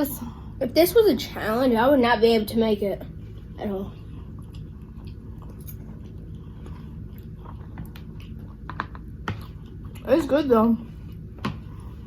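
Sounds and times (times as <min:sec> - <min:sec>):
steady low hum: 0:00.0 - 0:12.0
chewing soft food: 0:03.2 - 0:10.1.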